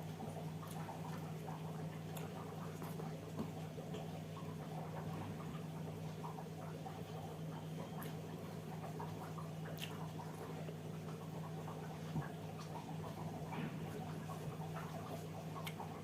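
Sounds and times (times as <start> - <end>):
person chewing: 9.7 - 10.8, 15.6 - 15.9.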